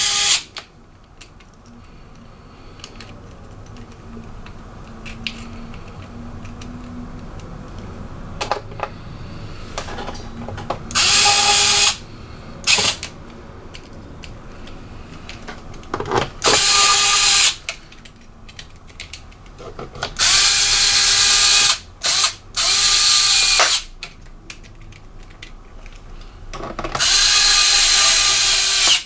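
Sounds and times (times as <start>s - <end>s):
electric screwdriver whirring: 0.0s - 0.5s, 10.9s - 12.0s, 12.6s - 13.1s, 16.4s - 17.6s, 20.2s - 23.9s, 27.0s - 29.0s
light clicks and handling: 17.7s - 20.2s, 24.0s - 26.9s.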